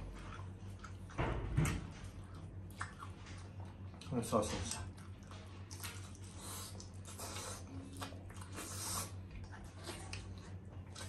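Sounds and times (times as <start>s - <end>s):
people chewing food: 0.0s - 11.0s.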